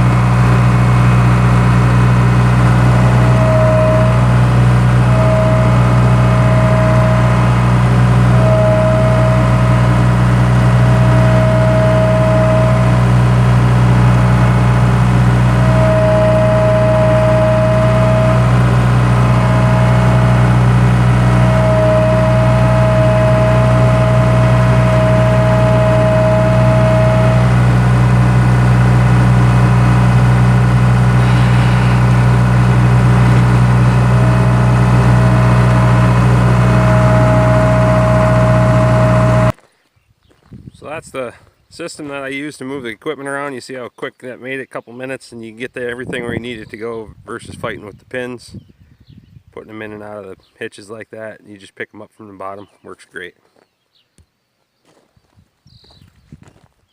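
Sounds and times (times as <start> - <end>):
high engine whine: 0.0 - 39.6
skid steer engine running: 0.0 - 39.6.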